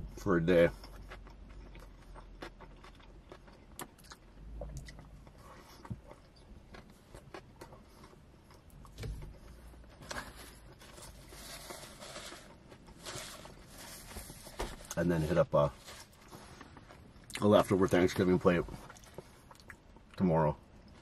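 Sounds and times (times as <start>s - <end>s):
chewing and mouth clicks: 0.7s - 9.0s, 18.8s - 20.2s
paper napkin rustling: 10.3s - 16.6s.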